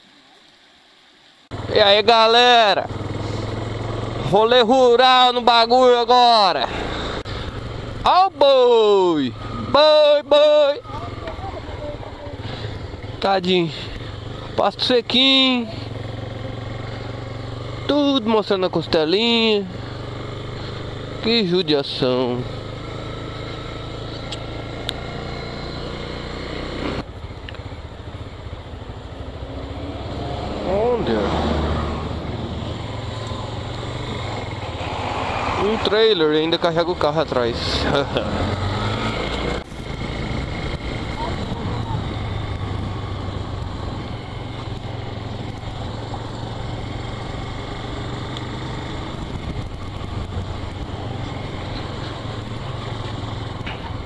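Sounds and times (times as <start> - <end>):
motorcycle engine running: 1.5 - 54.0
wind rushing over microphone: 34.4 - 36.7.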